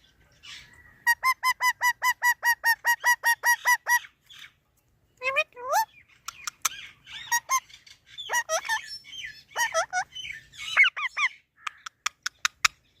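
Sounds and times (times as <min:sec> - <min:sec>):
parrot chirps: 0:00.5 - 0:04.1, 0:05.3 - 0:12.9
parrot chattering: 0:01.0 - 0:04.0, 0:05.4 - 0:07.6, 0:08.2 - 0:08.9, 0:09.5 - 0:12.8.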